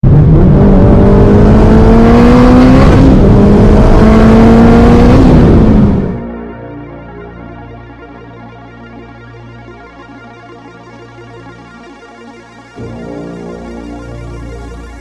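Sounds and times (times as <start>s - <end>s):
car engine accelerating hard: 0.0s - 6.2s.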